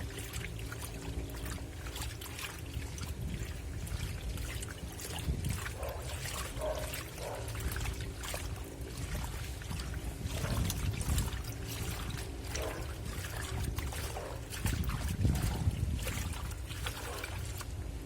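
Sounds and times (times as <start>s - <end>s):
steady motor hum: 0.0s - 18.0s
water sloshing in wash tub: 0.0s - 18.0s.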